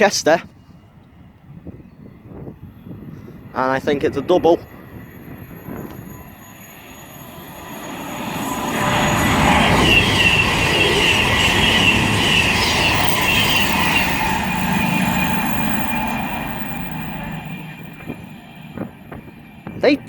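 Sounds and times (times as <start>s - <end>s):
train rumble: 0.0s - 20.0s
high wavering squeal: 4.2s - 19.7s.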